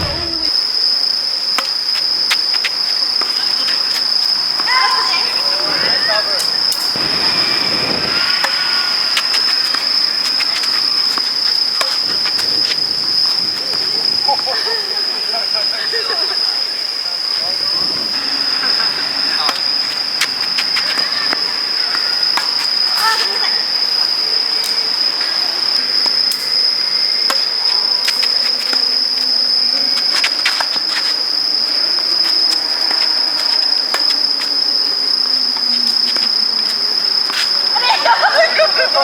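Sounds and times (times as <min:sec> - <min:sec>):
high-pitched insect drone: 0:00.0 - 0:39.0
tennis balls struck by rackets: 0:01.5 - 0:14.2, 0:18.1 - 0:25.4, 0:26.0 - 0:31.1.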